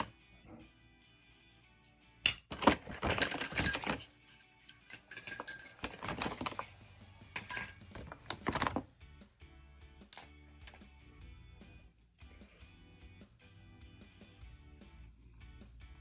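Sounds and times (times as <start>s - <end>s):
hard objects clattering and clinking: 0.0s - 0.5s, 2.2s - 8.9s
background music: 0.0s - 16.0s.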